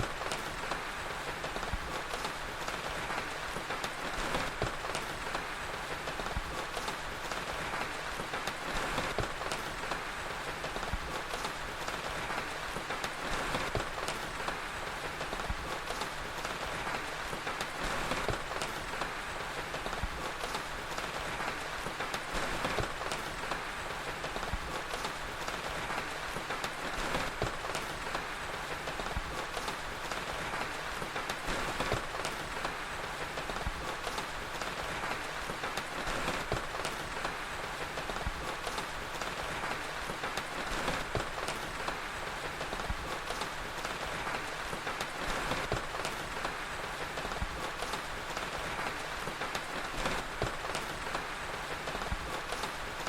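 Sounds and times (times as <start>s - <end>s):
fire crackling and popping: 0.0s - 53.0s
steady rain: 0.0s - 53.0s.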